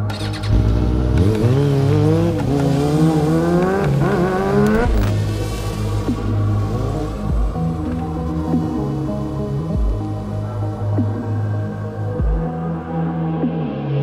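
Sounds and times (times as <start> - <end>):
motorcycle engine revving: 0.0 - 10.1
background music: 0.0 - 14.0.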